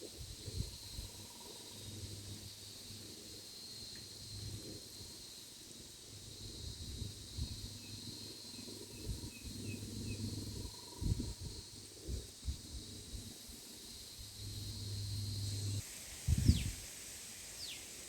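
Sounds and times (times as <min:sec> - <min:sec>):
wind rumble on microphone: 0:00.0 - 0:02.5, 0:06.1 - 0:13.4, 0:14.0 - 0:16.9
high insect drone: 0:00.0 - 0:18.0.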